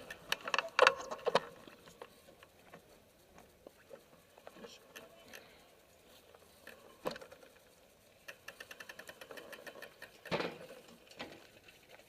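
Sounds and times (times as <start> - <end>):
bicycle freehub ticking: 4.2 - 12.0.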